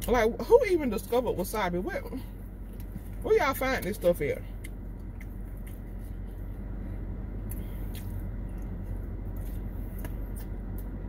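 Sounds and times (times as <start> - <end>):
low hum inside car: 0.0 - 11.0
quiet chewing: 2.2 - 3.2, 4.4 - 11.0.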